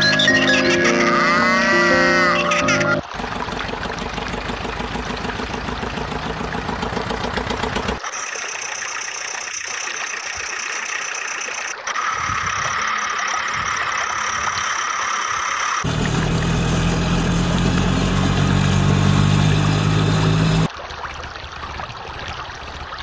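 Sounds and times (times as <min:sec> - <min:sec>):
motor running: 0:02.8 - 0:20.7.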